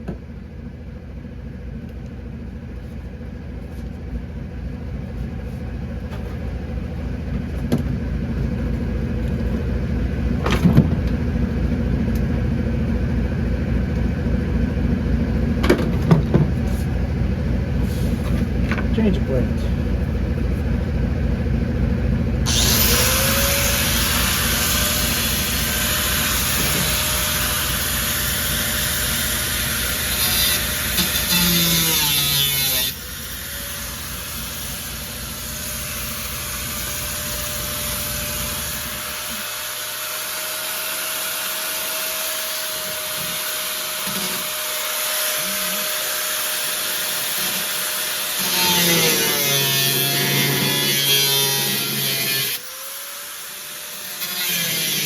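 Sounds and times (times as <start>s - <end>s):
low pulsing hum: 0.0s - 39.2s
power tool running: 22.4s - 55.0s.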